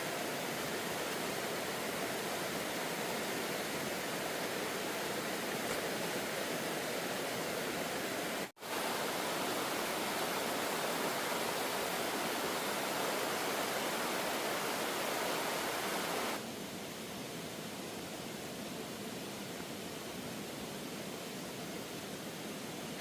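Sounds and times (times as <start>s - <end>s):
waterfall rushing: 0.0s - 16.5s.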